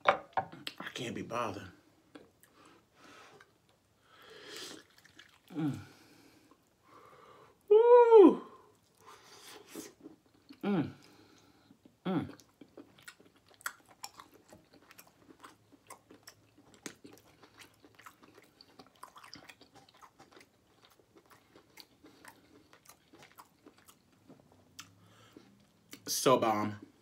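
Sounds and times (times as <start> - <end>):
man chewing food: 2.0 - 7.0, 8.7 - 26.1.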